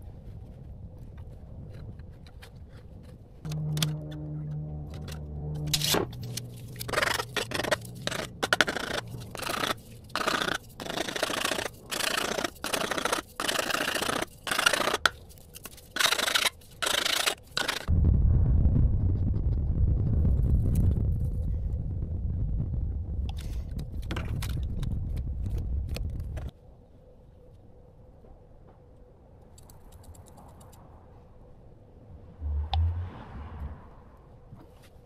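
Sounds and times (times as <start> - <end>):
hand saw cutting: 5.7 - 17.9.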